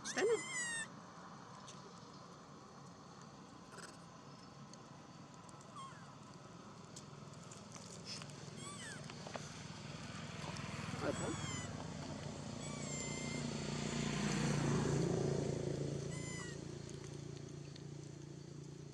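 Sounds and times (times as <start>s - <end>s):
baby monkey squeaking: 0.0s - 0.9s, 8.6s - 9.0s, 11.0s - 11.7s, 12.6s - 13.5s, 16.1s - 16.6s.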